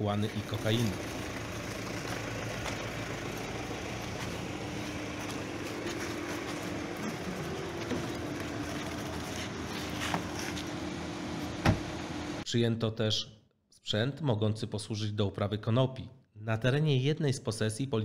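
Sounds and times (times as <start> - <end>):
vehicle engine idling: 0.0 - 12.4.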